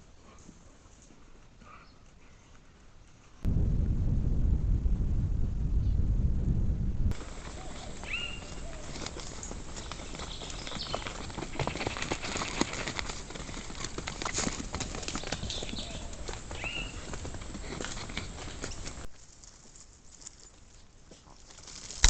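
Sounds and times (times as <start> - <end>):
animal footsteps on dry leaves: 7.1 - 22.0.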